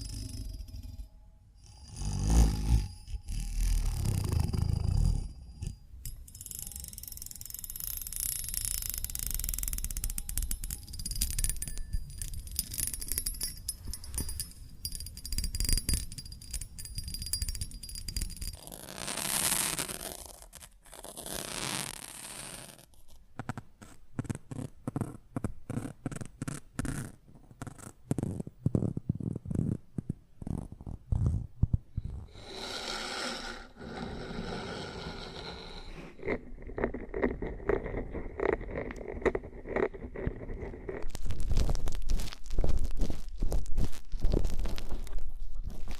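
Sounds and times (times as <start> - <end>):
scratchy rustling: 34.7 - 45.9.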